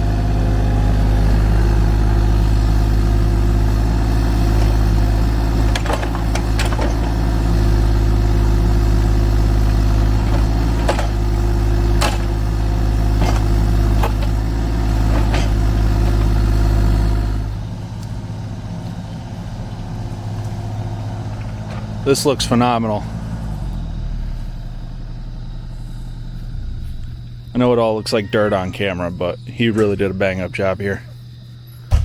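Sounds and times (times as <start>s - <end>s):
diesel engine running: 0.0s - 32.0s
metallic clanks and knocks: 4.3s - 7.8s, 10.0s - 12.5s, 13.1s - 16.4s.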